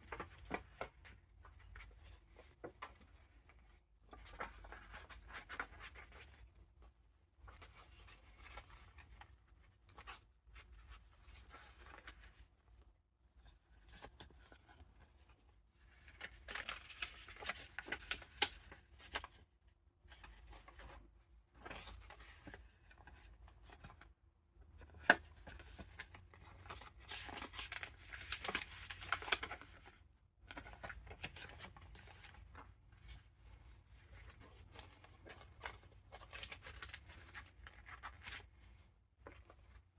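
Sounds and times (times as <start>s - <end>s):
paper rustling and crinkling: 0.0s - 6.8s, 13.8s - 19.4s, 24.7s - 39.9s.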